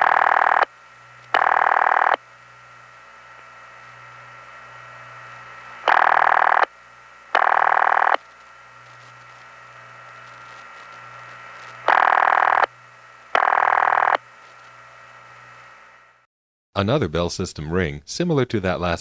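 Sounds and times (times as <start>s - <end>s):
buzzy telephone ringback: 0.0s - 0.7s, 1.3s - 2.2s, 5.9s - 6.7s, 7.4s - 8.2s, 11.5s - 12.7s, 13.4s - 14.2s
telephone line hiss and hum: 0.0s - 16.3s.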